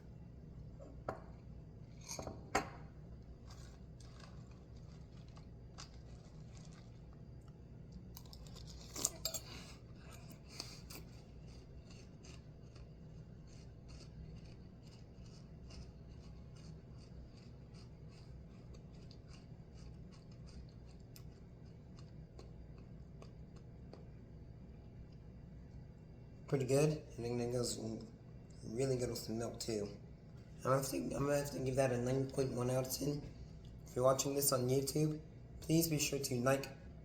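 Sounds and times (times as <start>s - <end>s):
crunchy chewing of cereal: 2.9s - 26.0s.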